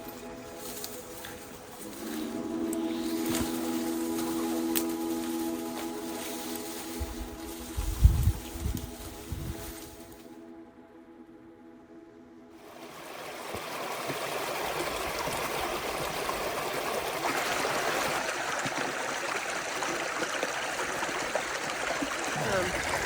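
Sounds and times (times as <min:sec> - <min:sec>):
creek water flowing: 0:00.0 - 0:10.3, 0:12.6 - 0:23.0
background music: 0:00.0 - 0:13.4.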